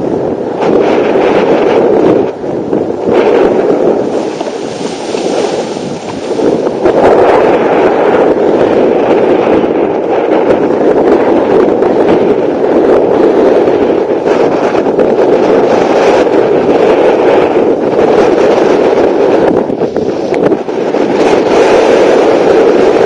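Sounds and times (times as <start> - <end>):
water rushing under board: 0.0 - 10.9
wind buffeting microphone: 0.0 - 23.0.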